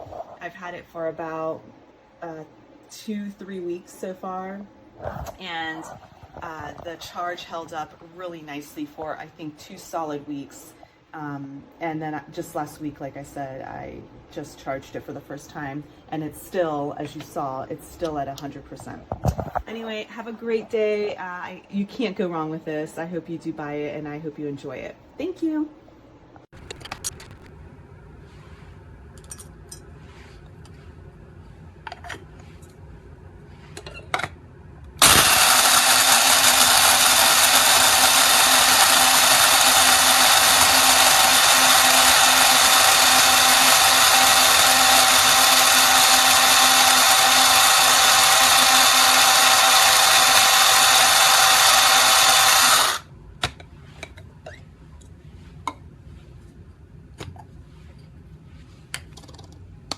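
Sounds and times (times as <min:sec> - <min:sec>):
electric coffee grinder running: 0:35.0 - 0:53.1.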